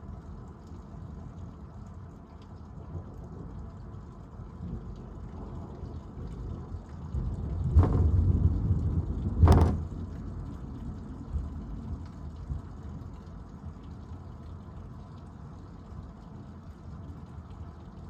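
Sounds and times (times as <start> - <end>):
thunder rumbling: 4.7 - 10.7.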